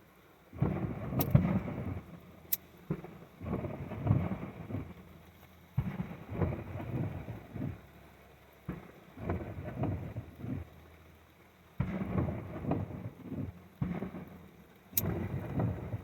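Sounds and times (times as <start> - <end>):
fireworks booming and crackling: 0.0 - 8.0, 8.6 - 10.8, 11.8 - 16.0
sharp crack: 0.6 - 5.0, 11.8 - 16.0.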